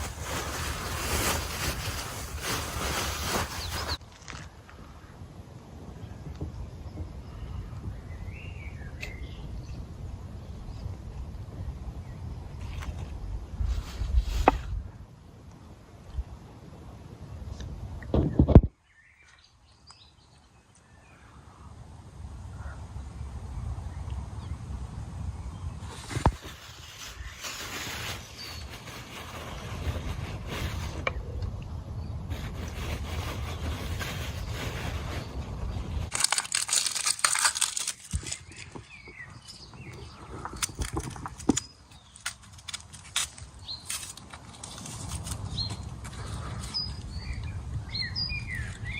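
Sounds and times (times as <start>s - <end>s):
crinkling and crunching: 0.0s - 4.6s, 32.8s - 47.0s.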